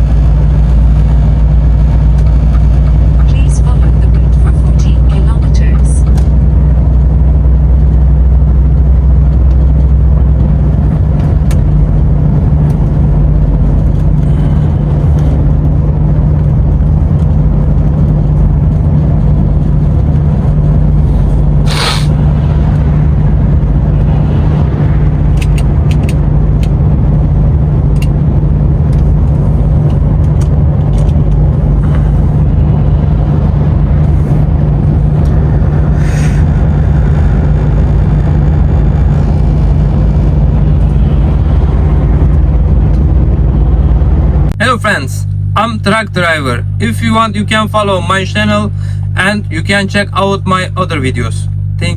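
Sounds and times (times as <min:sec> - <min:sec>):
road noise: 0:00.0 - 0:51.9
truck diesel engine droning: 0:00.0 - 0:51.9
short sharp hiss: 0:21.6 - 0:22.2, 0:36.0 - 0:36.4.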